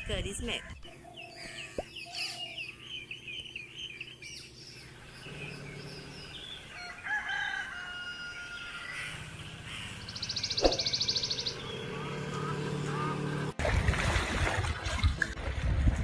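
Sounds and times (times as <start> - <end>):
birds chirping and calling: 0.0 - 13.5.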